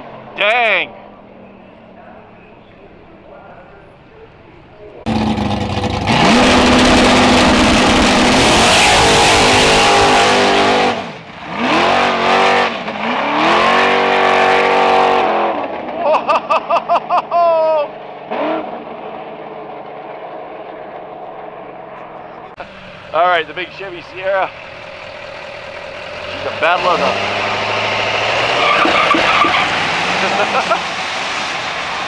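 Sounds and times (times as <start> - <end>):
racing car engine at full throttle: 5.0 - 16.0, 17.9 - 32.0
stuttering engine revs: 5.1 - 16.0, 22.6 - 32.0.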